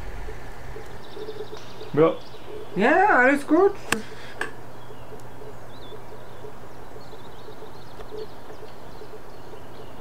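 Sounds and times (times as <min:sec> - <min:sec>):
faint bird chirps: 0:00.0 - 0:03.0, 0:04.6 - 0:10.0
steady low hum: 0:00.0 - 0:09.6.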